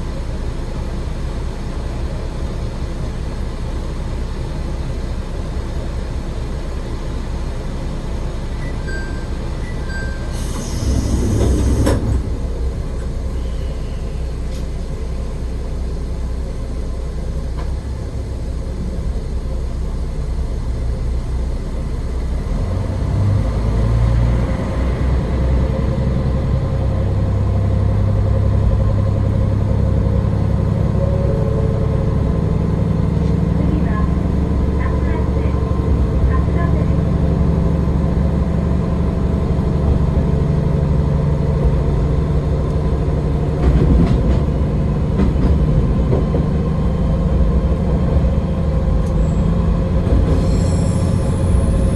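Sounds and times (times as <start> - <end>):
diesel railcar engine running: 0.0 - 51.9
sharp air hiss: 10.3 - 12.0.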